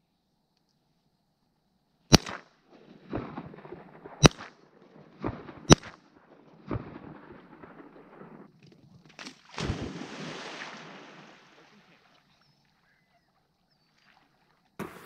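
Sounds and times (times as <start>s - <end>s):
shotgun shots: 2.1s - 8.5s
dull echo boom: 2.2s - 8.5s.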